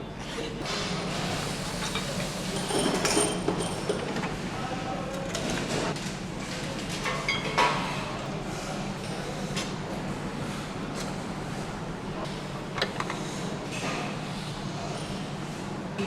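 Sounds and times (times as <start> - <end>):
machinery hum: 0.6 - 4.6.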